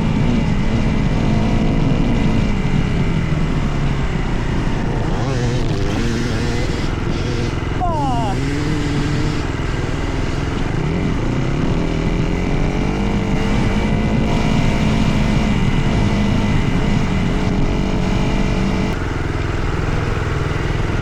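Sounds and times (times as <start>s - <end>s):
dirt bike engine revving: 0.0s - 20.4s.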